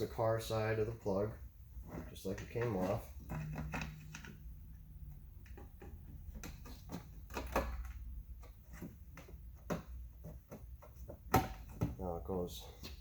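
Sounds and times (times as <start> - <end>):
plastic car part clicks and knocks: 5.4 - 12.0.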